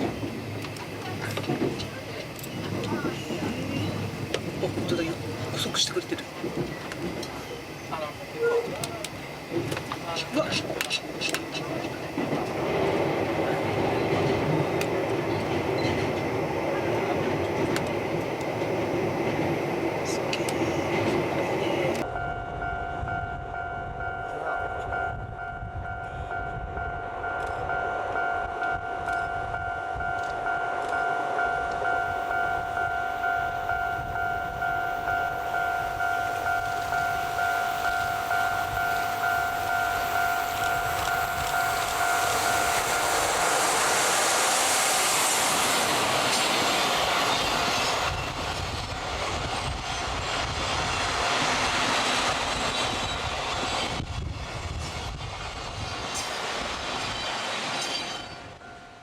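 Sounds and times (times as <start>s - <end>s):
train wheels clicking on rails: 0.0s - 22.1s, 28.6s - 58.7s
steady high tone: 22.0s - 46.0s
rushing noise: 31.3s - 58.7s.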